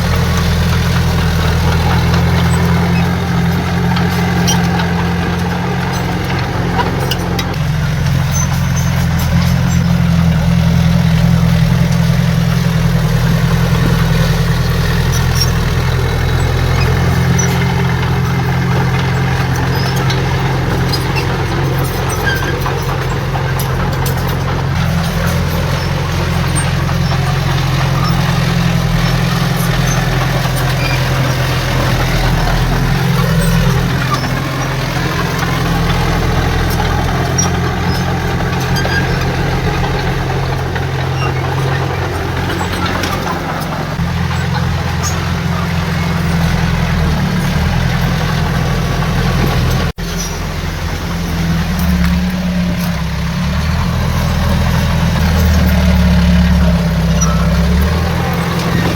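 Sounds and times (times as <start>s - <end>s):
heavy diesel engine running: 0.0s - 58.9s.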